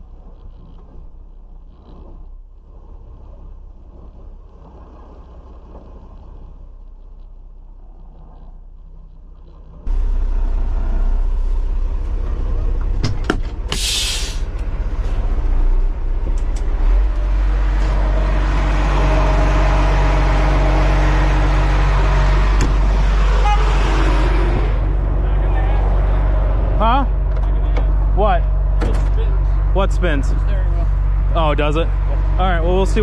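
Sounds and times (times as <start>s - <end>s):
truck diesel engine running: 0.0s - 33.0s
air hiss: 13.7s - 14.5s.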